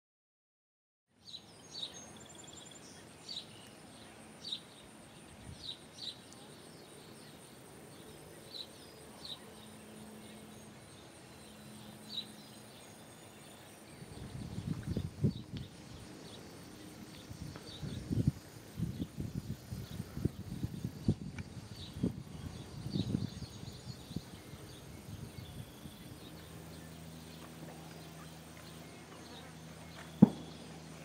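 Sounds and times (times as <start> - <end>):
birds chirping: 1.2 - 31.0
steady high hiss: 1.2 - 31.0.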